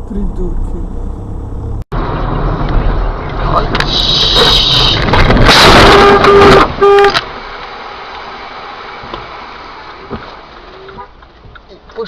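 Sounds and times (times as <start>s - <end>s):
loud traffic noise: 0.6s - 11.5s
car horn blasts: 5.4s - 7.3s.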